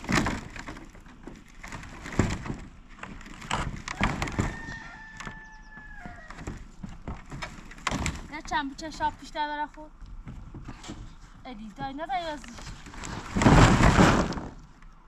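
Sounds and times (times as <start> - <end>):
knocks and thuds of roof work: 0.0 - 14.8
rooster crowing: 3.9 - 6.5.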